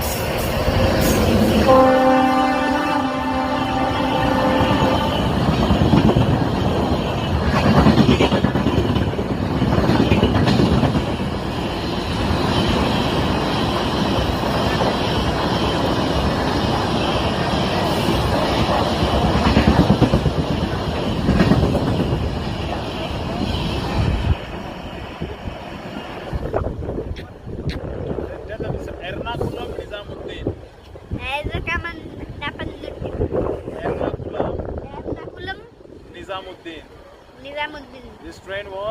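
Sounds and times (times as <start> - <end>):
train horn: 1.2 - 5.4
train wheels clattering: 4.6 - 26.2.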